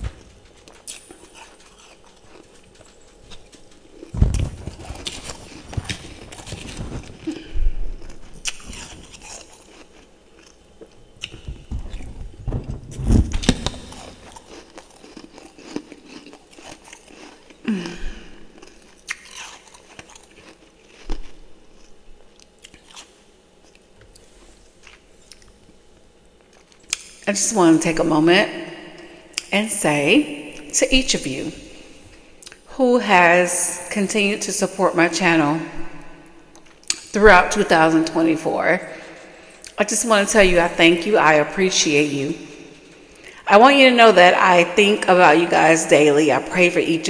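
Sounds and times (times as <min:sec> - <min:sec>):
person chewing crunchy frost: 0:00.1 - 0:12.1, 0:13.4 - 0:25.8, 0:31.5 - 0:32.7, 0:35.9 - 0:37.2.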